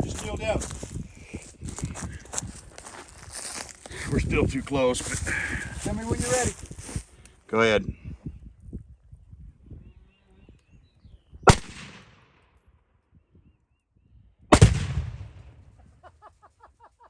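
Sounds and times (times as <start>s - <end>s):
explosive blasts: 14.5s - 15.7s.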